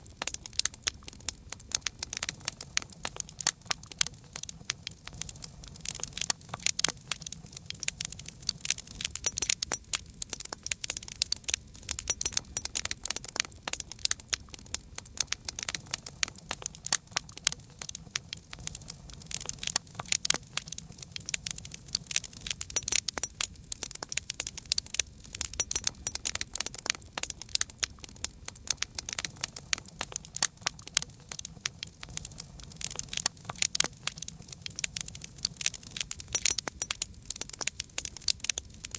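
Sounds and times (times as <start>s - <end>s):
low rumble of flames: 0.0s - 38.9s
wood fire crackling: 0.0s - 38.9s.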